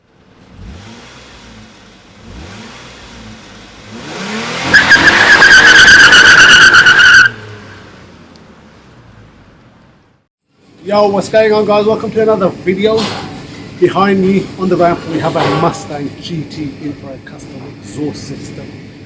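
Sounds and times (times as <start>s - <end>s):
car engine revving: 0.4s - 9.5s
tyres squealing: 4.6s - 7.9s.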